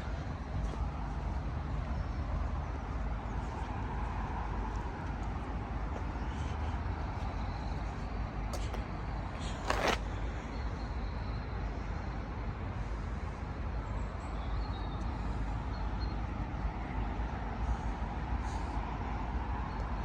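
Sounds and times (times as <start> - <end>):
road traffic rumbling: 0.0 - 14.3.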